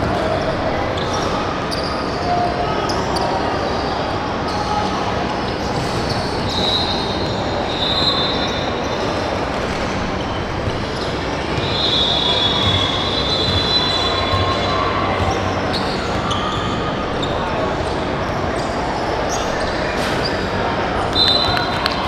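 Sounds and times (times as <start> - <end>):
crowd and gym noise: 0.0 - 22.0
basketball bouncing: 21.1 - 22.0
shoes squealing on hardwood: 21.1 - 22.0.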